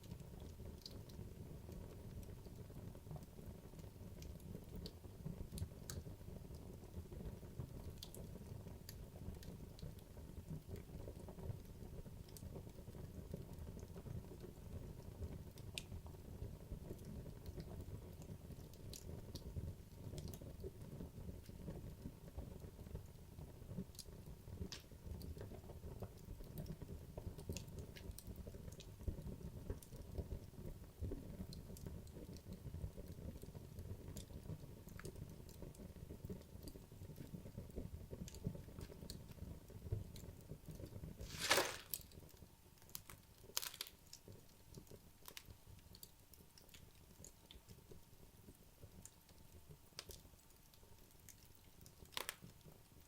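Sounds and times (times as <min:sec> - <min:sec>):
wood fire crackling and popping: 0:00.0 - 0:53.0
loud crack of burning wood: 0:41.2 - 0:42.2, 0:42.9 - 0:44.2, 0:52.0 - 0:52.5.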